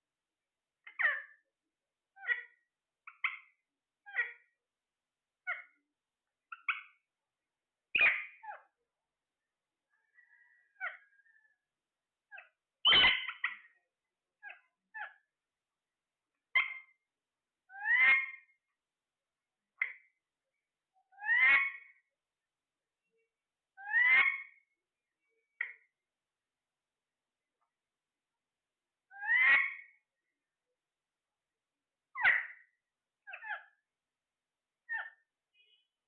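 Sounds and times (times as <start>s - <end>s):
parrot chirps and squawks: 0.8s - 1.4s, 2.1s - 4.6s, 5.4s - 5.8s, 6.5s - 7.0s, 8.0s - 8.8s, 10.0s - 11.6s, 12.3s - 13.8s, 14.4s - 15.3s, 16.5s - 17.0s, 17.7s - 18.6s, 19.8s - 20.2s, 21.1s - 22.1s, 23.8s - 24.8s, 25.5s - 25.9s, 29.1s - 30.0s, 32.1s - 33.8s, 34.8s - 35.9s.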